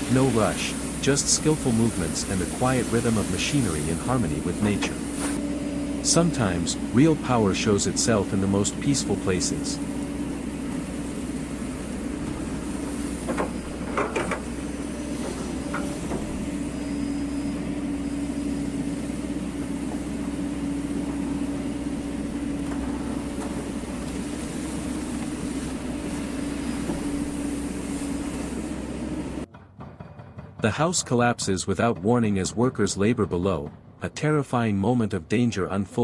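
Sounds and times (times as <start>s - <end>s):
excavator engine running: 0.0s - 36.0s
machine knocks: 13.2s - 14.5s, 29.5s - 34.1s.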